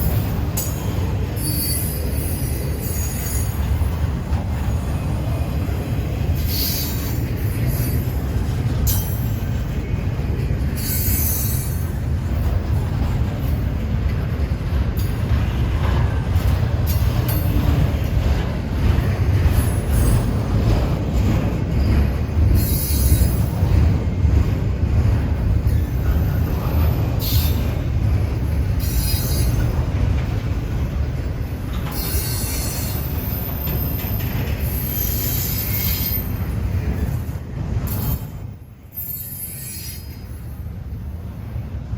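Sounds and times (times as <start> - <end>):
high wheel squeal: 0.0 - 3.6, 6.4 - 8.3, 10.8 - 11.9, 22.6 - 23.5, 28.8 - 29.8, 31.8 - 37.2, 37.9 - 40.6
train cars rumbling on rails: 0.0 - 41.9.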